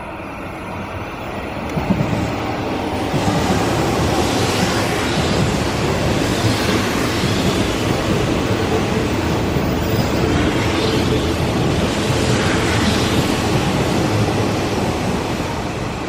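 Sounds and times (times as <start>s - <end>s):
electric train passing at speed: 0.0s - 16.0s.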